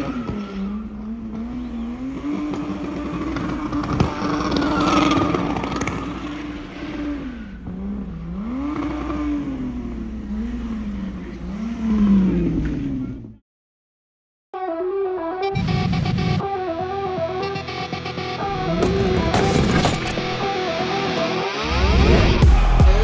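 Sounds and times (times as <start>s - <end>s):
sports car engine revving: 0.0s - 13.4s, 18.5s - 23.0s.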